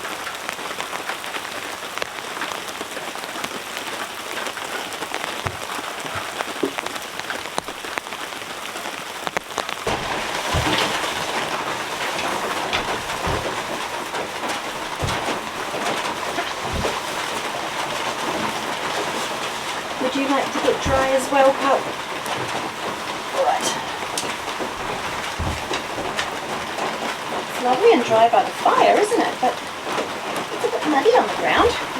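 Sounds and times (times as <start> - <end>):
heavy rain falling: 0.0 - 31.9
short low thuds: 9.6 - 20.0, 22.3 - 27.4.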